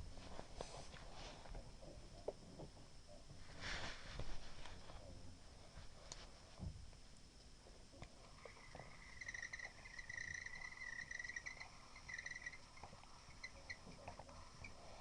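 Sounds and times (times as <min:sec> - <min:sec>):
small bird chirping trill: 0:08.4 - 0:14.9.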